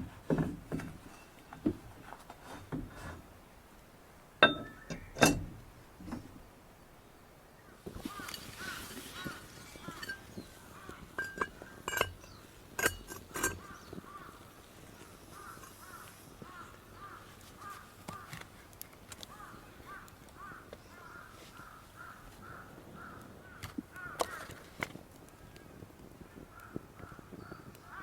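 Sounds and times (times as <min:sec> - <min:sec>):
metallic clinks of cookware: 0:04.4 - 0:05.5, 0:09.8 - 0:10.4, 0:11.2 - 0:13.7
bird calling: 0:07.7 - 0:12.5.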